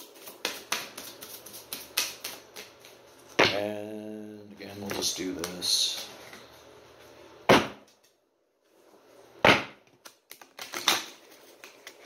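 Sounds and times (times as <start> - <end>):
cards slapping: 0.0 - 3.0.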